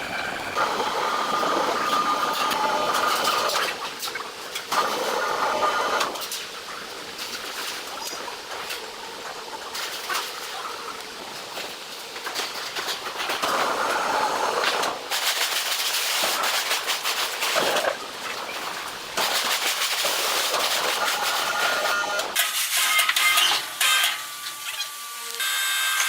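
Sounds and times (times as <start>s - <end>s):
sawmill machinery clattering: 0.0s - 6.5s.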